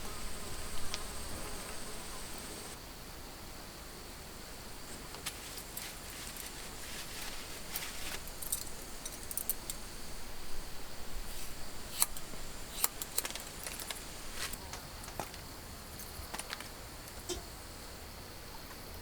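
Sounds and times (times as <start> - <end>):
small hard objects clinking: 5.2 - 9.8, 12.0 - 15.4.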